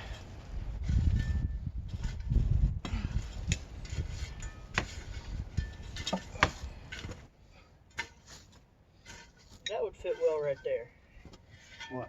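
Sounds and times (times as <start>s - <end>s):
rocks clinking and knocking: 4.3s - 7.3s.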